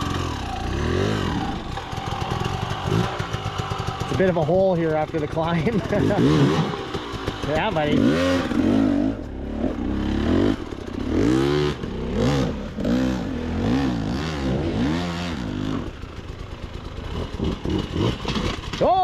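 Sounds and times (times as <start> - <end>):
dirt bike engine revving: 0.0 - 18.8.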